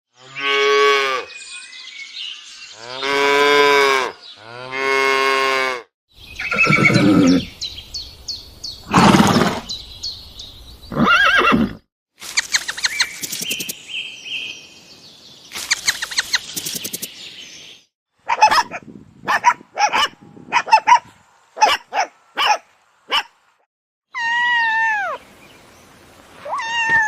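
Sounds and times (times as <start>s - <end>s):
small birds chirping: 6.1s - 11.1s, 12.2s - 17.9s
farm animal calling: 6.4s - 7.5s.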